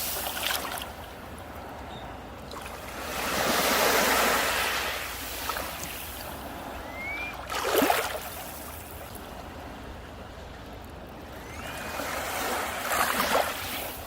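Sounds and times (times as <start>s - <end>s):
surf hiss: 0.0s - 1.1s, 3.0s - 10.2s, 11.4s - 14.0s
waves breaking on beach: 0.0s - 1.8s, 2.4s - 14.0s.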